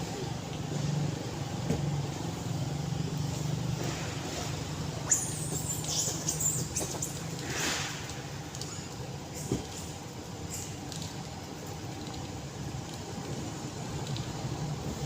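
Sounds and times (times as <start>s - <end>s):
high gliding squeaks and chirps: 5.0s - 7.4s.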